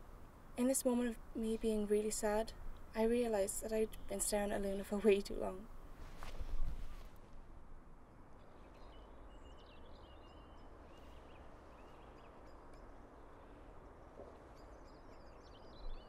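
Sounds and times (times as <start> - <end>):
faint background rumble: 0.0 - 8.7
small bird chirping: 0.9 - 5.4, 8.4 - 16.0.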